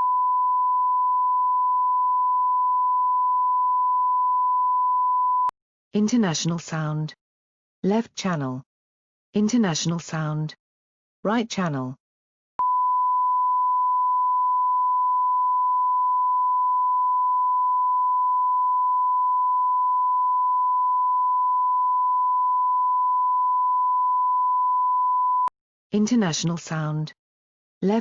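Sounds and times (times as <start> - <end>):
steady sine reference tone: 0.0 - 5.5, 12.6 - 25.5.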